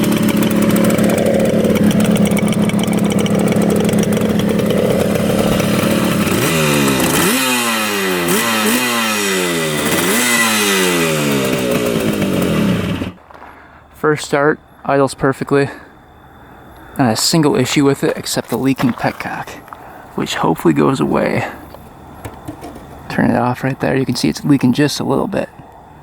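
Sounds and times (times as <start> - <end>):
two-stroke motorcycle engine revving: 0.0 - 13.2.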